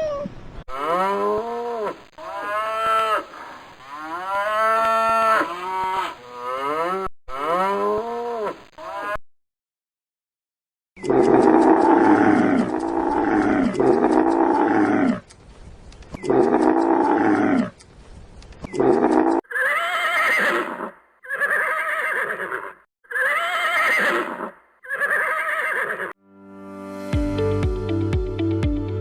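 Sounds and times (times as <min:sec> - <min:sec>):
horse whinnying: 0:00.0 - 0:00.4, 0:18.8 - 0:26.2
low falling animal calls: 0:00.0 - 0:00.7.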